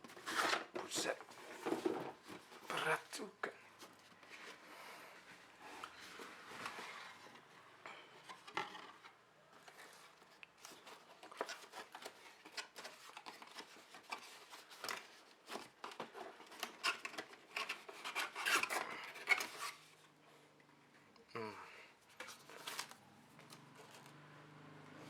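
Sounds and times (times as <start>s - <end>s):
cardboard rubbing and scraping: 0.1s - 2.7s.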